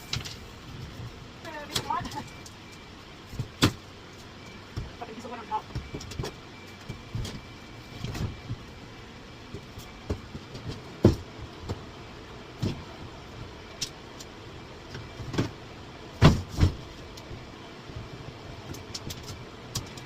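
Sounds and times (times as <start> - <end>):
knocks and thumps of hand work: 16.2 - 16.8.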